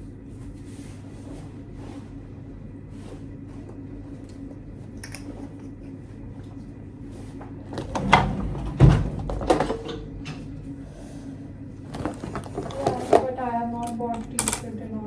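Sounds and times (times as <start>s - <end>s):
low hum: 2.2s - 12.8s
knocks and clatters of handling: 7.4s - 10.5s, 11.9s - 14.7s.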